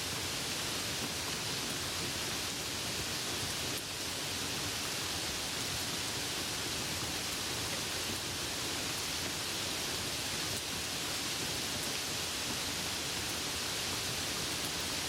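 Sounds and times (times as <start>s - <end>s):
soft rain falling: 0.0s - 15.0s.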